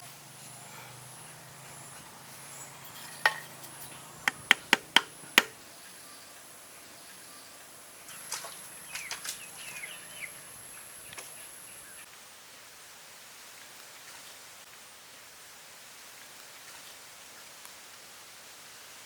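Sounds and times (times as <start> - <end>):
rustling and scraping: 2.3 - 5.6
sharp knocks: 4.2 - 5.6.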